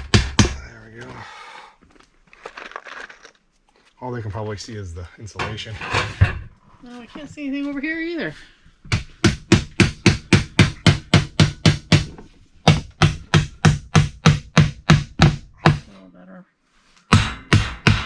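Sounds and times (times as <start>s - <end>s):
hammer driving nails into wood: 0.0s - 0.6s, 8.9s - 15.9s, 17.1s - 18.0s.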